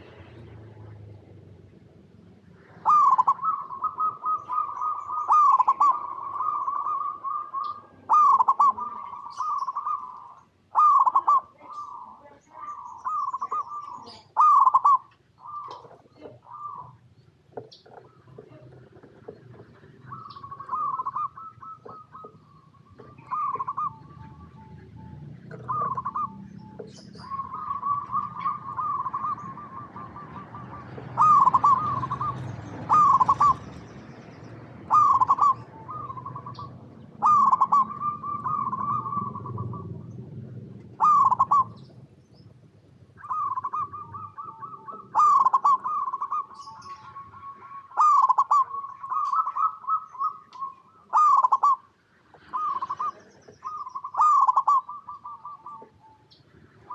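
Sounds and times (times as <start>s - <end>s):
dove cooing: 2.2s - 56.9s.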